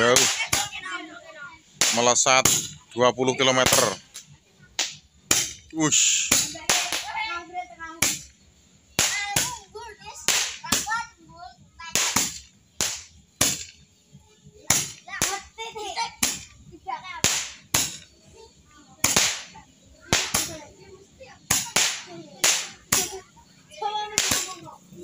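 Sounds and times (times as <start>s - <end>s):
firework rockets banging: 0.0s - 2.8s, 3.4s - 25.0s.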